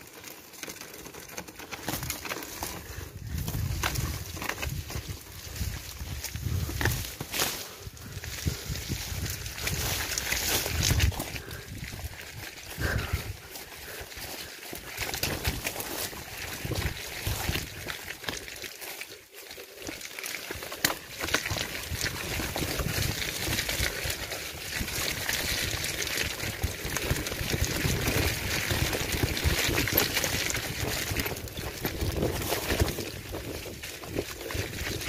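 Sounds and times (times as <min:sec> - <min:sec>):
bike jolting and rattling: 0:00.0 - 0:35.0
wind rushing on microphone: 0:03.2 - 0:07.0, 0:07.9 - 0:12.2, 0:24.7 - 0:35.0.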